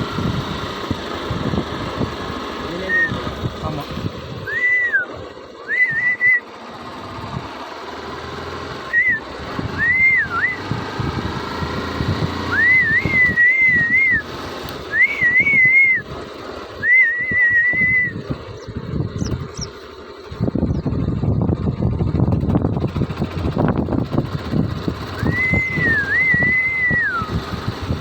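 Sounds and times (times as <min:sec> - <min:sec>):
person whistling a tune: 0:04.5 - 0:06.5, 0:08.9 - 0:10.7, 0:12.5 - 0:14.3, 0:14.9 - 0:16.1, 0:16.8 - 0:18.2, 0:25.1 - 0:27.4.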